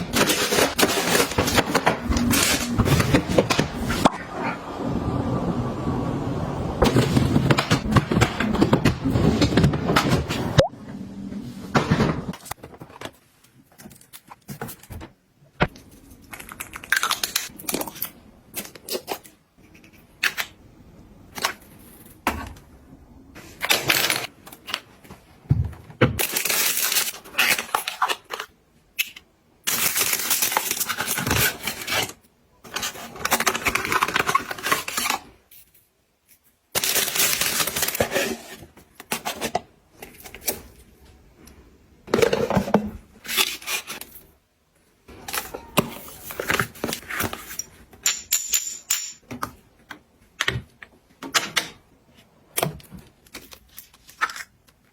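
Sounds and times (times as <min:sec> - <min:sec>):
packaging rustling and tearing: 0:00.0 - 0:04.0, 0:26.2 - 0:28.5, 0:29.7 - 0:35.3, 0:36.8 - 0:40.8.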